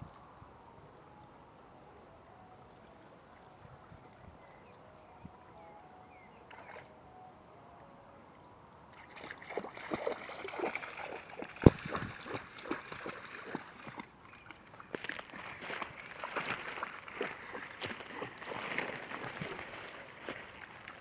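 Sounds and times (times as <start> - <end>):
dogs splashing through water: 9.0 - 21.0.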